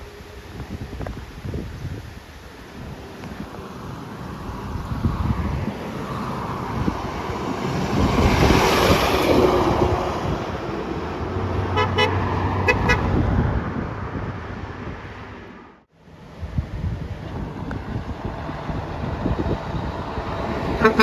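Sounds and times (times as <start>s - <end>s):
truck driving past: 2.7s - 21.0s
truck horn toots: 11.6s - 13.2s, 20.6s - 21.0s.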